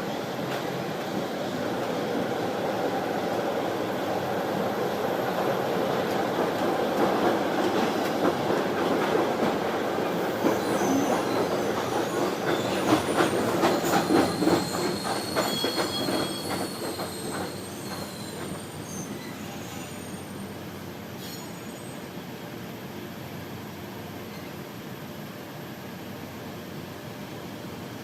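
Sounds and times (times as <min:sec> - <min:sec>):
train coaches rumbling: 0:00.0 - 0:21.4
faint thin squeal: 0:13.9 - 0:20.6, 0:21.2 - 0:22.0.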